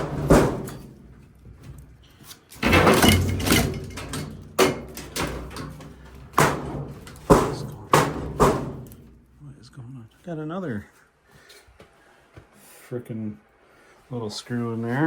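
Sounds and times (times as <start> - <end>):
longer rattle: 0.0 - 9.4
parts knocking and clattering: 0.0 - 9.4.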